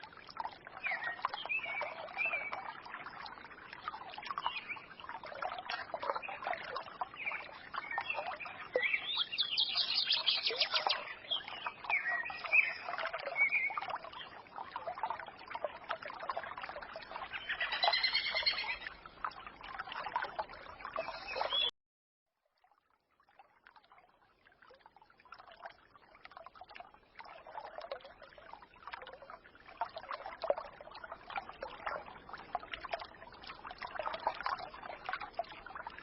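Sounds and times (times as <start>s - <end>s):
stream trickling and babbling: 0.0s - 21.7s, 22.3s - 36.0s
songbirds singing: 0.8s - 2.8s, 4.2s - 14.4s, 17.2s - 19.0s, 20.9s - 21.7s.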